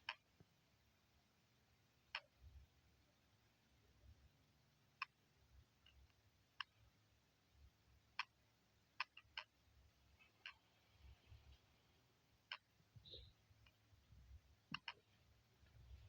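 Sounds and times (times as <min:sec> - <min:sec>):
faint sharp clicks: 0:14.7 - 0:15.1.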